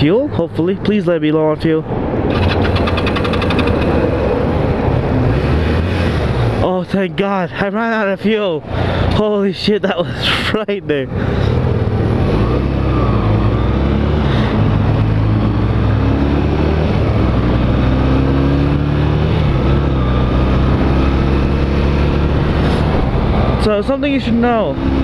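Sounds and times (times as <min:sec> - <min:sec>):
wind and road noise: 0:00.0 - 0:25.0
motorcycle engine running: 0:02.3 - 0:04.4.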